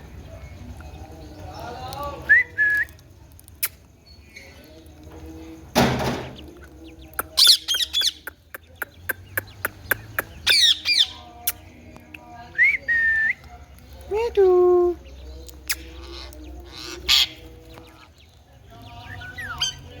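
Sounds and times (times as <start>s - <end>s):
sharp clicks: 2.8s - 3.9s
parrot harsh squawks: 15.9s - 17.4s.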